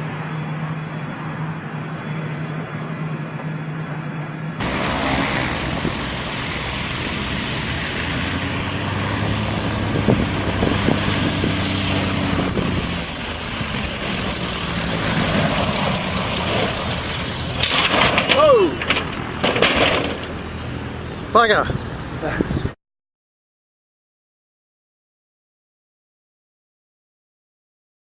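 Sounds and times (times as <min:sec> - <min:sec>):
engine humming: 0:00.0 - 0:22.7
loud rushing noise: 0:04.6 - 0:20.3.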